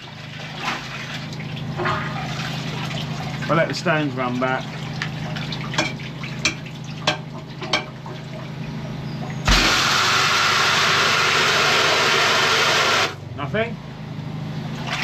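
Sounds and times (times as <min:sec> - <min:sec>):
drain jetter humming: 0:00.0 - 0:13.3, 0:14.4 - 0:15.0
high-pressure water jet hissing: 0:09.5 - 0:13.2.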